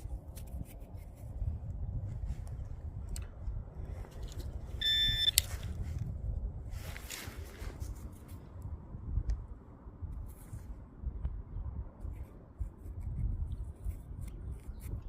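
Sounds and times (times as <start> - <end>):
steady low rumble: 0.0 - 15.0
metal detector beep: 4.8 - 5.5
short rustle: 6.7 - 8.6.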